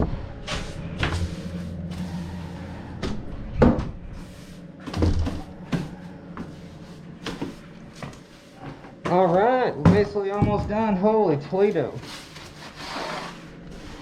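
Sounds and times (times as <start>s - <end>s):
broom sweeping a floor: 0.4s - 2.9s, 4.1s - 8.9s, 11.9s - 14.0s.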